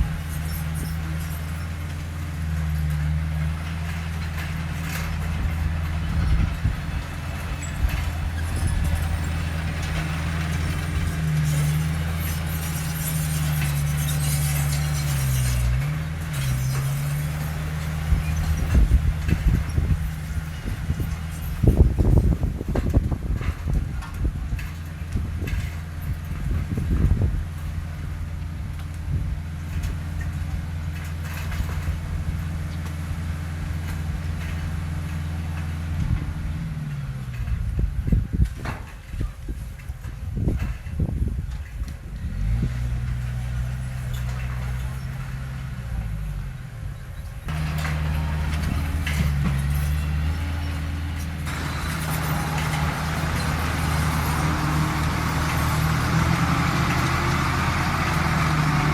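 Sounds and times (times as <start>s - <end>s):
heavy diesel engine running: 0.0s - 38.9s, 39.5s - 58.9s
light metal clanks: 28.7s - 46.2s, 47.2s - 58.9s.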